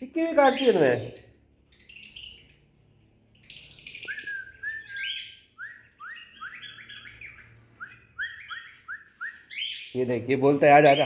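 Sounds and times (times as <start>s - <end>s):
caged birds chirping: 0.0s - 11.0s.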